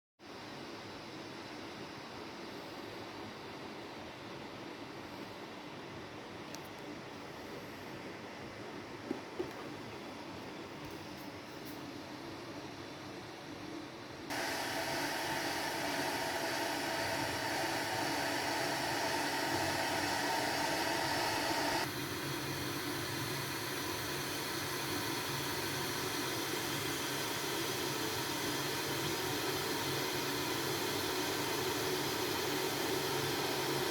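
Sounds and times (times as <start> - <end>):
electric kettle hissing: 14.3 - 33.9.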